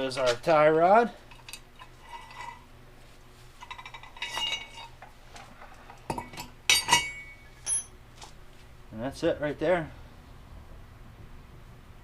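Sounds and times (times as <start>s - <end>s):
metallic clinks and rattles: 3.6s - 5.0s, 6.1s - 8.0s
sharp metal clank: 6.1s - 7.9s.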